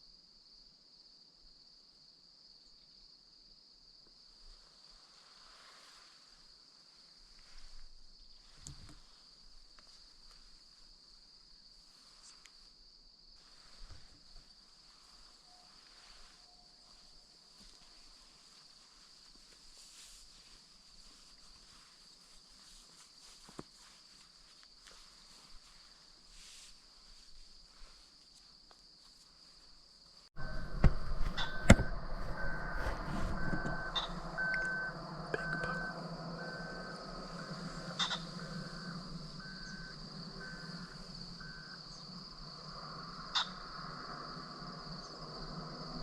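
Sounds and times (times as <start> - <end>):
short electronic beeps: 30.4 - 42.0
steady high tone: 30.4 - 46.0.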